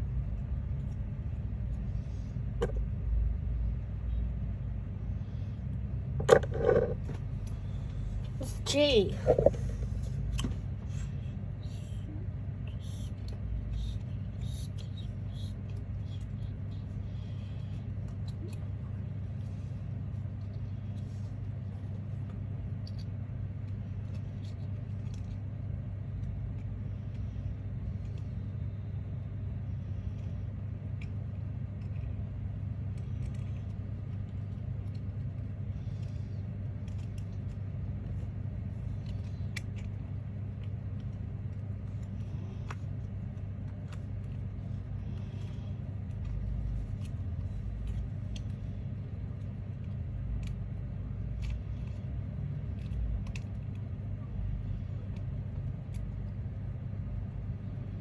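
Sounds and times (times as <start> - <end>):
steady low hum: 0.0 - 58.0
clicks and rustles of materials: 13.0 - 28.6, 30.0 - 57.3.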